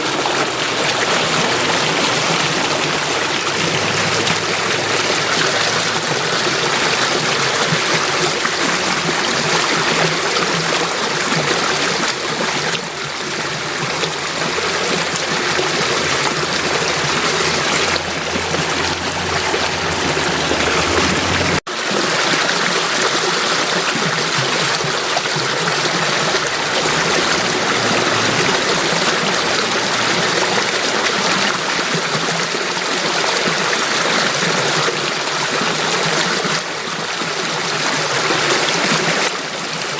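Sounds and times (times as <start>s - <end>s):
stream water flowing and splashing: 0.0s - 39.9s.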